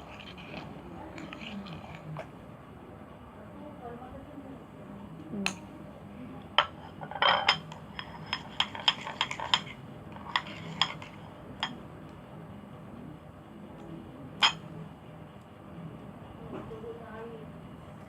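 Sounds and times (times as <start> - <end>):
utensil clinking against container: 6.6 - 11.8.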